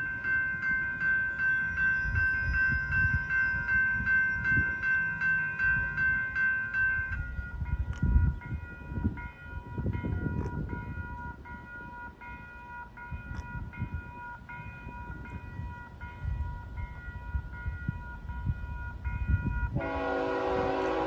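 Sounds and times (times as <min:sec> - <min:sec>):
crossing bell ringing: 0:00.0 - 0:21.0.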